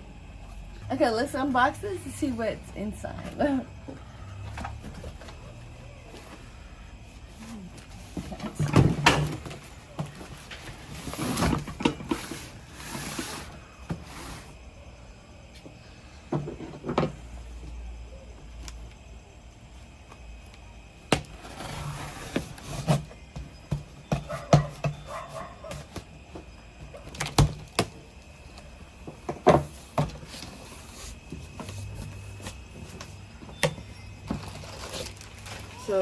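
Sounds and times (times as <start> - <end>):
packaging scraping and rustling: 29.7 - 36.0.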